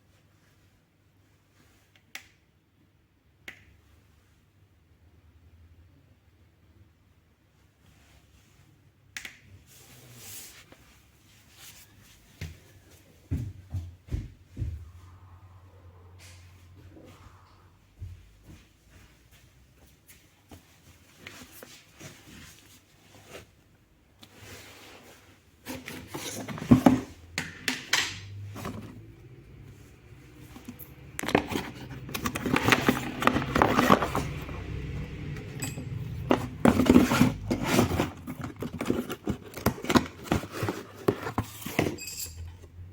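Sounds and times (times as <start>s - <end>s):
plastic fan parts handled: 25.7s - 29.1s, 30.4s - 42.6s.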